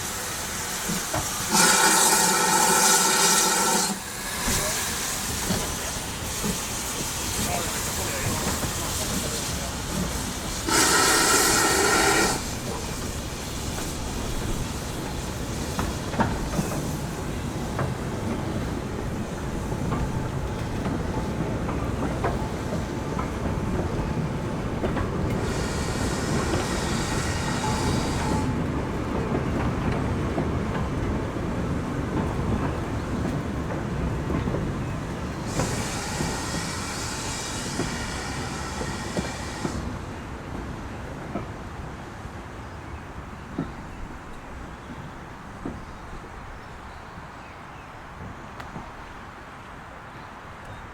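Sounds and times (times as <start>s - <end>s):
hissing steam: 0.0s - 29.1s, 32.3s - 40.4s
train rumbling on rails: 0.0s - 50.9s
steam locomotive whistle: 1.4s - 4.0s, 10.6s - 12.6s, 25.4s - 28.6s, 35.5s - 39.9s.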